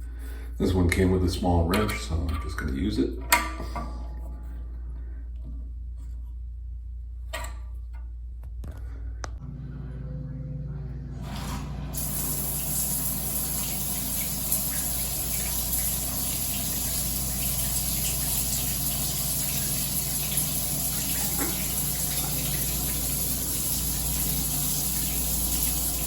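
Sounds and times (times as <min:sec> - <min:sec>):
water running from shower head: 0:11.2 - 0:26.0.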